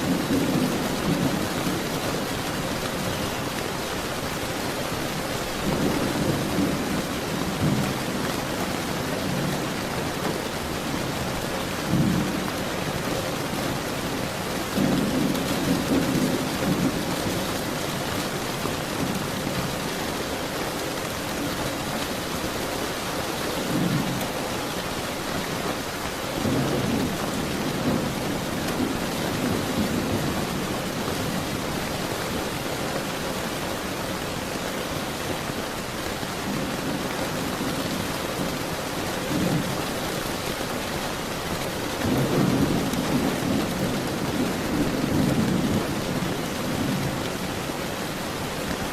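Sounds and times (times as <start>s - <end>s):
steady rain falling: 0.0s - 48.9s
thunder rolling: 5.6s - 17.5s.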